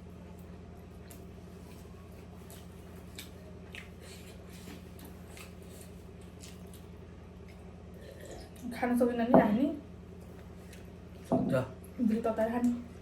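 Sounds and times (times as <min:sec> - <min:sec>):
steady low hum: 0:00.0 - 0:13.0
mouth chewing and smacking: 0:01.0 - 0:08.6.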